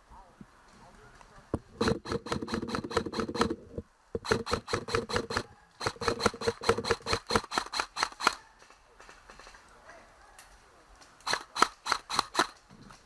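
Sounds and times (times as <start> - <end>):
airsoft gun rapid firing: 1.8 - 3.6, 4.2 - 8.4, 11.2 - 12.6.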